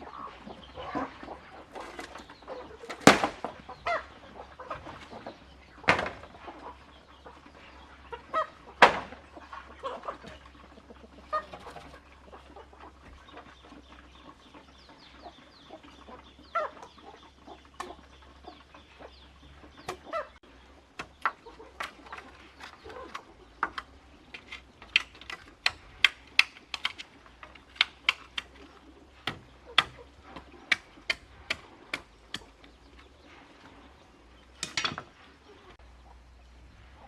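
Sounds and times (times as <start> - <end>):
sharp knocks: 5.8 - 6.4, 8.8 - 9.2.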